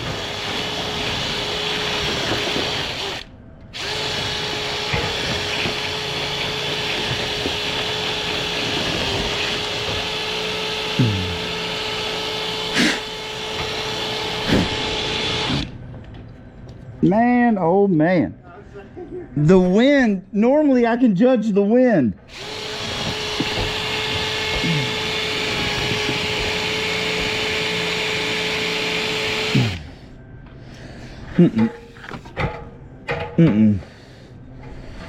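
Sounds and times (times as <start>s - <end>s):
power drill spinning brush: 3.8s - 15.6s, 22.3s - 29.9s.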